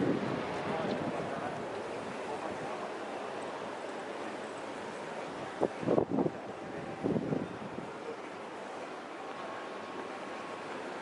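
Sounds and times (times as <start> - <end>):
wind on microphone: 0.0 - 2.7, 5.4 - 8.0
sea surf washing on shore: 0.0 - 11.0.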